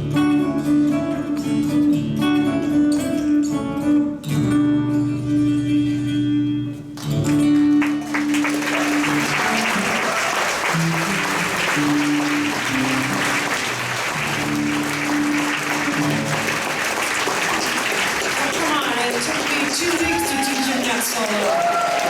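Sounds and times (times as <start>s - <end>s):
guitar notes ringing: 0.0s - 10.0s, 10.6s - 16.7s
audience applause: 7.2s - 22.0s.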